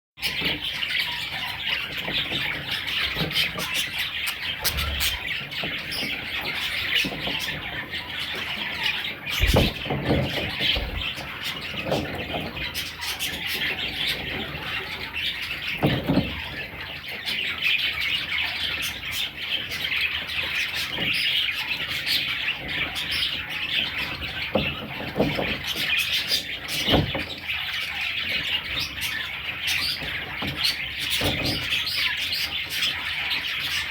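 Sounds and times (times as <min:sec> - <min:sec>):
budgerigars chattering: 0:00.2 - 0:33.9
bird squawks: 0:02.5 - 0:06.1
dull thumps: 0:09.4 - 0:11.0.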